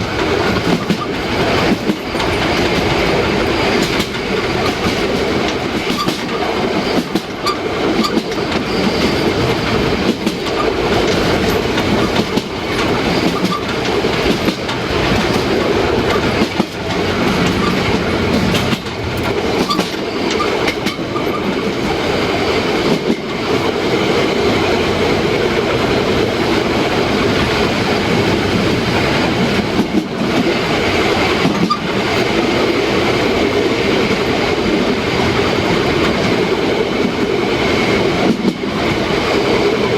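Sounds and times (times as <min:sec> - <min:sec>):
wheels clicking over rail joints: 0:00.0 - 0:24.3
steam train running: 0:00.0 - 0:39.9.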